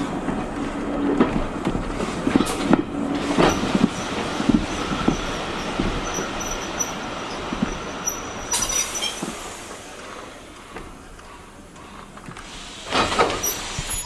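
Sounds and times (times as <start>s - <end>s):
railway carriage rolling: 0.0s - 14.0s
high squeal: 4.8s - 10.1s.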